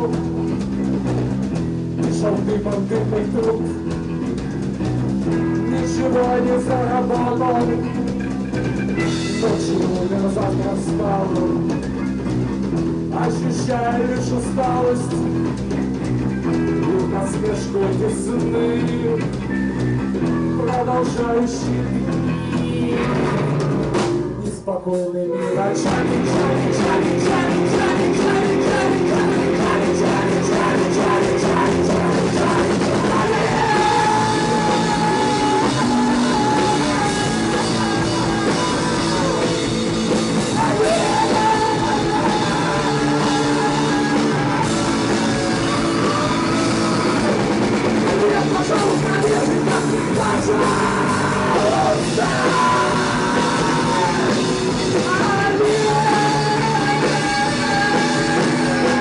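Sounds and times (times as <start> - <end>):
drums and bass: 0.0 - 59.0
lead guitar melody: 25.4 - 59.0.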